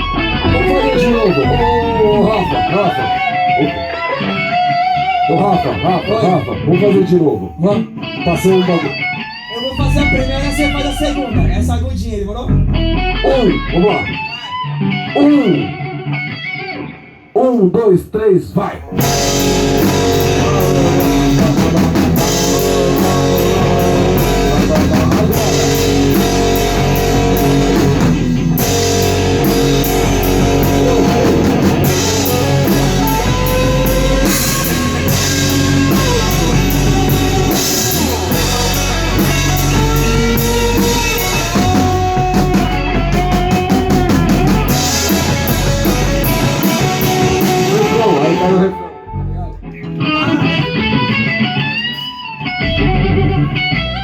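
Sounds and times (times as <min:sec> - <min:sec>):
drum kit: 0:00.0 - 0:06.2, 0:09.8 - 0:14.3, 0:18.8 - 0:48.5
rock band playing: 0:00.0 - 0:17.3, 0:18.8 - 0:54.0
electric guitars harmonising: 0:00.0 - 0:17.4, 0:18.7 - 0:54.0.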